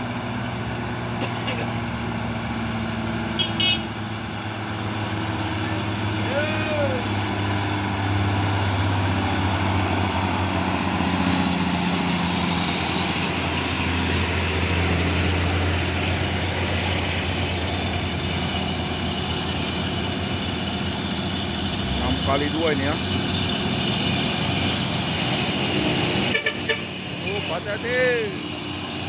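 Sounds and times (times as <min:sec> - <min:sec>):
truck engine droning: 0:00.0 - 0:29.0.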